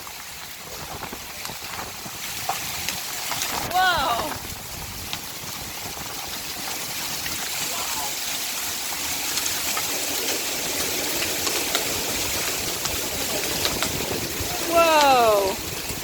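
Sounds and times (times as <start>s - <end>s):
hailstones ticking: 0.0s - 16.0s
heavy rain downpour hissing: 0.0s - 16.0s.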